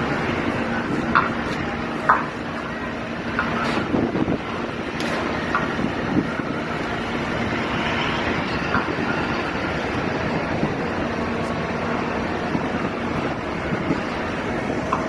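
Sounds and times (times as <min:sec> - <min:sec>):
strong wind blowing: 0:03.6 - 0:15.0.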